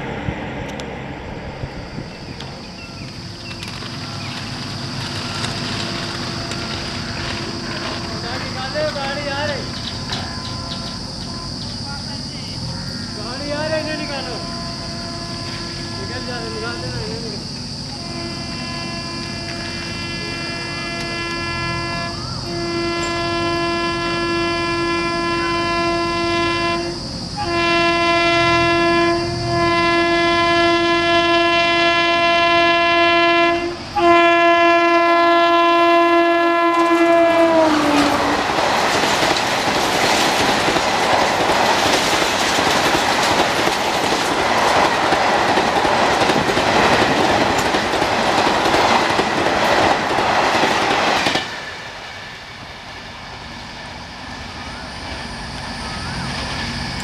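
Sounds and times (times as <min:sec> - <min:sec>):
train coaches rushing past: 0:00.0 - 0:57.0
train horn blasts: 0:05.3 - 0:12.0, 0:12.6 - 0:17.2, 0:17.9 - 0:38.6.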